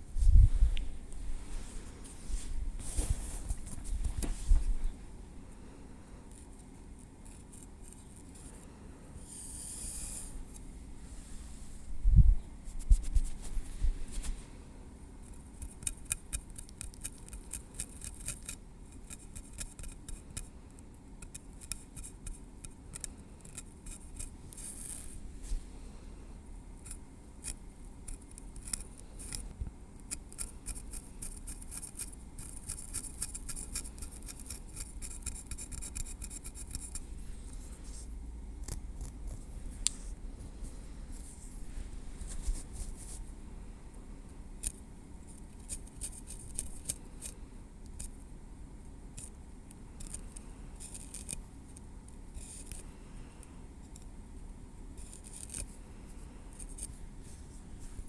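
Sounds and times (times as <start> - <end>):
tweezers ticking and scratching: 15.2 - 25.2, 26.8 - 37.0, 44.6 - 48.3, 49.1 - 52.8, 55.0 - 55.7.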